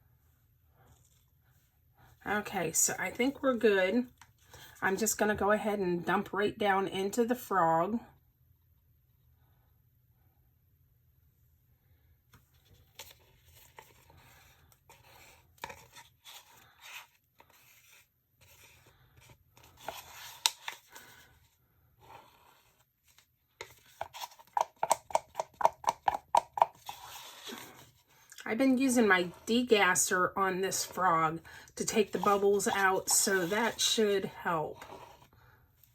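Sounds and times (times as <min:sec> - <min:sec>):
stirring stick scraping a cup: 0:31.8 - 0:35.3.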